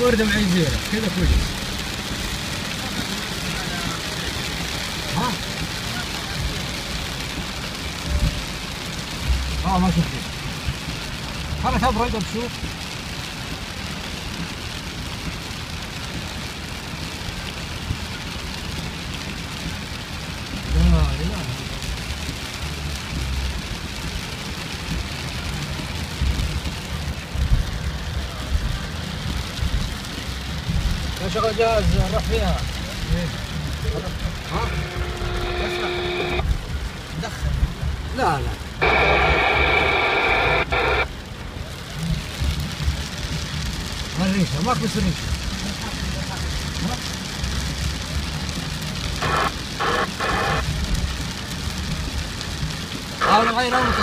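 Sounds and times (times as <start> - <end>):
rain falling: 0.0 - 54.0
low rumble: 20.6 - 44.2.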